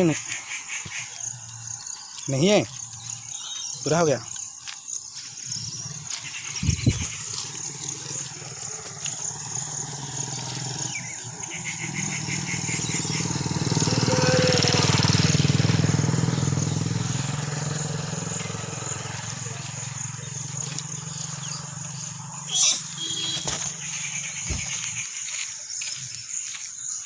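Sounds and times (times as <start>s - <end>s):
insect chirring: 0.0s - 27.0s
vehicle engine driving past: 5.5s - 25.1s.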